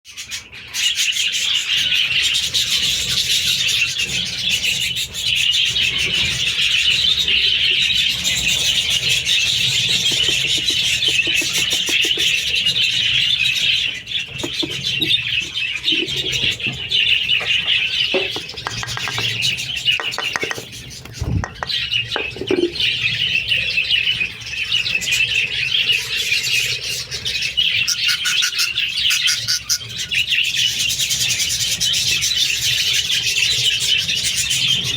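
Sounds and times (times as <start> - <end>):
budgerigars chattering and chirping: 0.1 - 34.9.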